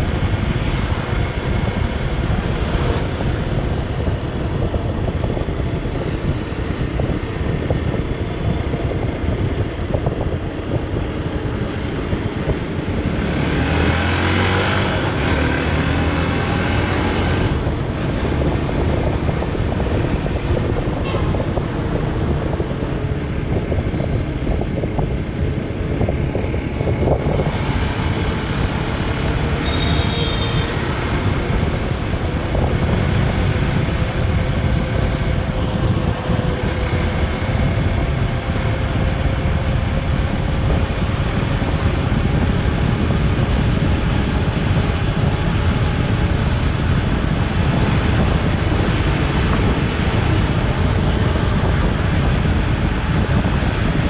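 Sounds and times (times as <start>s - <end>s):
wind noise on microphone: 0.0s - 54.0s
motorcycle engine: 0.7s - 41.3s
brief high beep: 29.6s - 30.7s.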